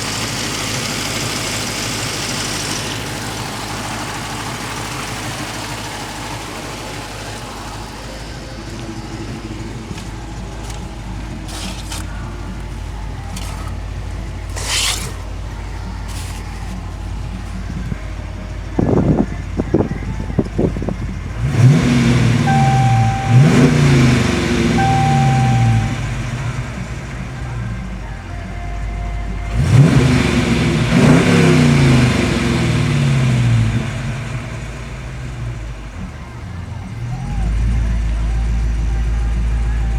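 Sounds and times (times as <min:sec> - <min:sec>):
car engine idling: 0:00.0 - 0:39.9
loud short engine bursts: 0:14.4 - 0:16.8, 0:21.4 - 0:26.4.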